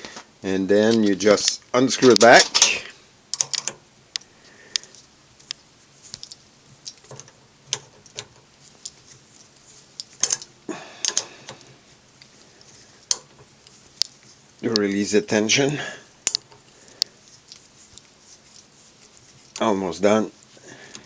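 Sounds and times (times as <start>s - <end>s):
spanner clicking on nut: 3.3s - 3.8s, 10.0s - 11.6s.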